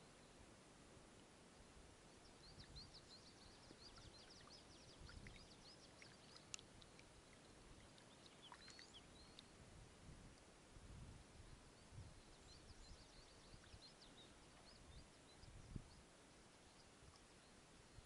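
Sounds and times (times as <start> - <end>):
small bird chirping: 2.2 - 9.6.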